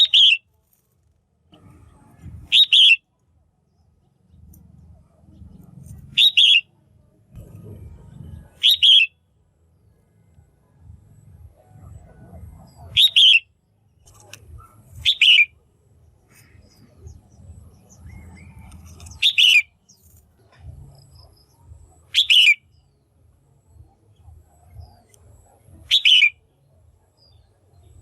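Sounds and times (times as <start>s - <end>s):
bulbul calling: 0.0s - 0.5s, 2.3s - 3.2s, 5.3s - 6.8s, 8.4s - 9.2s, 11.9s - 15.6s, 16.2s - 23.0s, 23.8s - 26.6s.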